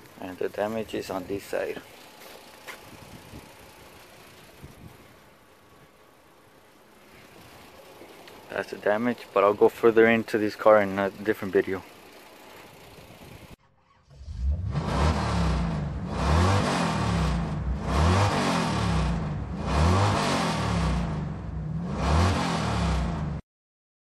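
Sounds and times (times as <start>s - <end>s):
car engine revving: 13.8s - 23.4s.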